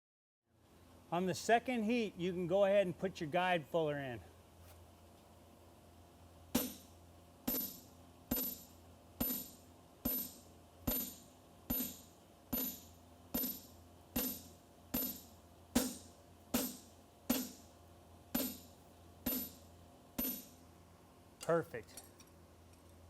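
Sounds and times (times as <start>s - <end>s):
hammer blows on steel: 6.6s - 6.9s, 12.6s - 17.6s.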